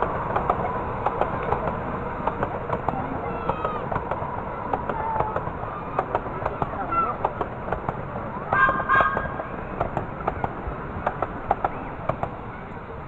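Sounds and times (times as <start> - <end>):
locomotive whistle toots: 8.5 - 9.6.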